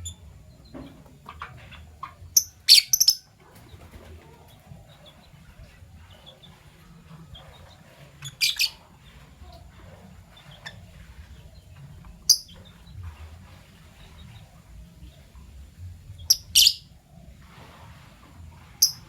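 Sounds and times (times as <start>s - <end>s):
lovebirds chirping: 0.0s - 17.5s, 18.7s - 19.0s
low background rumble: 0.0s - 19.0s.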